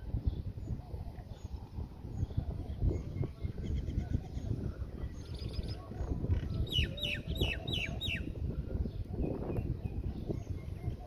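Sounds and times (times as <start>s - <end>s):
bird chirping: 0.3s - 8.4s.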